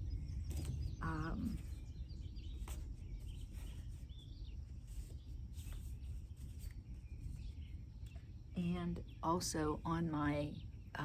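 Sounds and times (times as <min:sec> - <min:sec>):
faint bird chirps: 0:00.0 - 0:11.0
low background rumble: 0:00.0 - 0:11.0.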